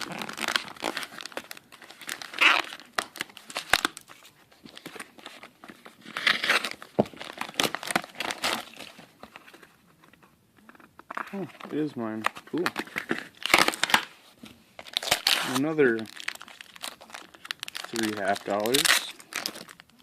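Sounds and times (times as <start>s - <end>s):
packaging crinkling and tearing: 0.0s - 9.6s, 10.7s - 14.2s, 14.8s - 20.0s.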